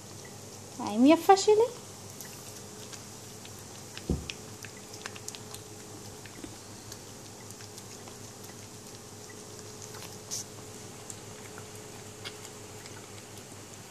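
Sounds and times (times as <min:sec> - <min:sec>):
faint steady hum: 0:00.0 - 0:13.9
cat licking and chewing: 0:01.8 - 0:13.9
knock: 0:04.1 - 0:04.3.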